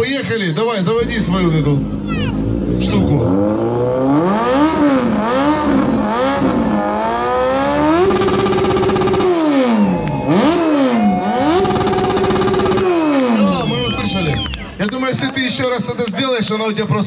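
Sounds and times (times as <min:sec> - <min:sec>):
motorcycle engine revving: 0:01.0 - 0:13.7.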